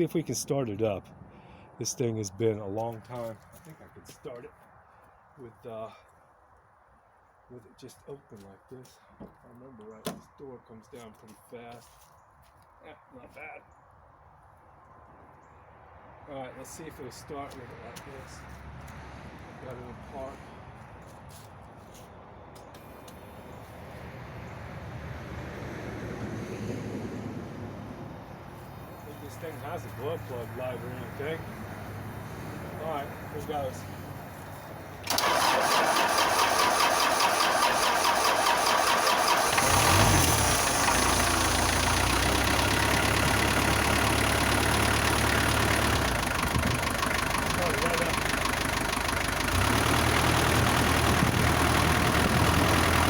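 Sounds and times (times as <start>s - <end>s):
passing road vehicle rumble: 14.9s - 21.4s, 22.1s - 37.3s, 38.0s - 53.0s
diesel engine starting and idling: 27.9s - 53.0s.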